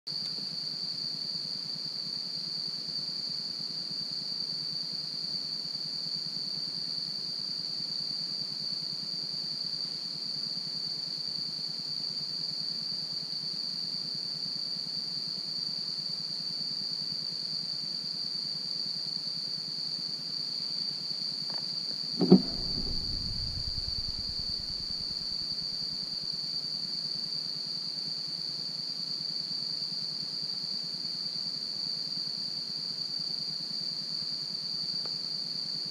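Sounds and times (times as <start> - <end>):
thump: 22.2 - 25.4.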